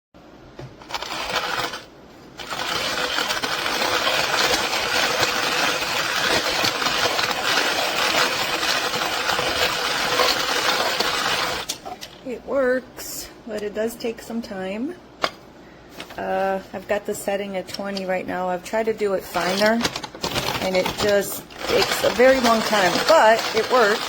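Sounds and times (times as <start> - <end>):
coffee grinder crushing beans: 0.8 - 12.2, 19.2 - 24.0.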